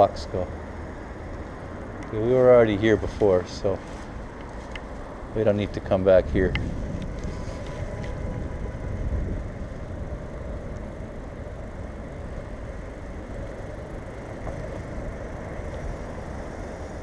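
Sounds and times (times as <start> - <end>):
bicycle tyres rolling on pavement: 0.0 - 17.0
wind on microphone: 5.3 - 10.9.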